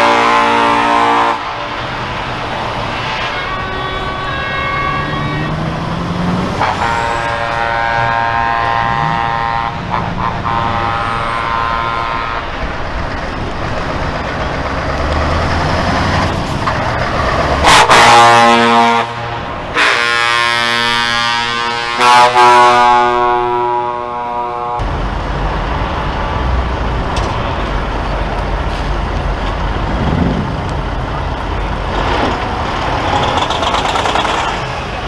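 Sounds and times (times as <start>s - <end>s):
truck air horn blasts: 0.0s - 13.6s, 15.2s - 24.9s, 31.5s - 35.0s
diesel engines rumbling: 0.0s - 35.0s.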